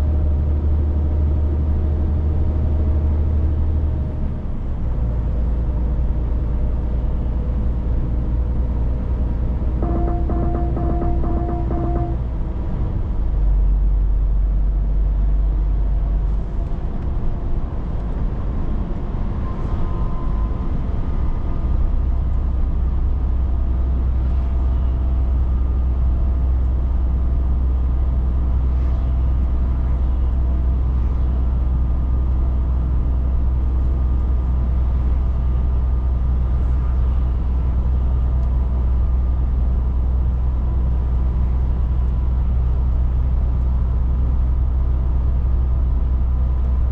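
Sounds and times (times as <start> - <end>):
truck engine drone: 0.0 - 16.6
road noise: 0.0 - 46.9.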